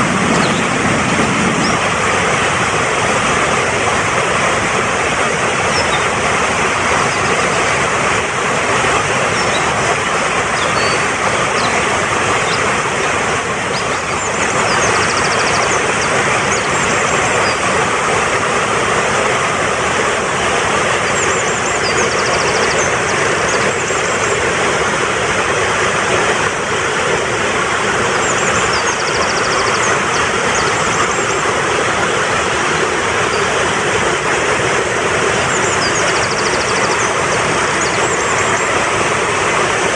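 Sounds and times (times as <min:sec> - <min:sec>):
mountain stream rushing: 0:00.0 - 0:39.9
small birds chirping: 0:00.3 - 0:00.8, 0:05.7 - 0:06.1, 0:09.2 - 0:09.8, 0:10.4 - 0:12.7, 0:13.6 - 0:17.6, 0:21.0 - 0:24.2, 0:28.1 - 0:31.4, 0:35.5 - 0:38.8.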